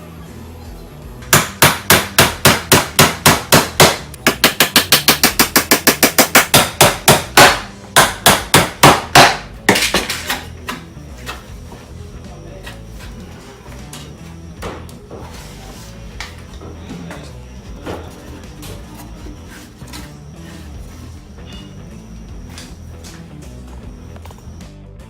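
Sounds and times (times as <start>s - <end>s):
hammer striking nails: 1.3s - 10.8s.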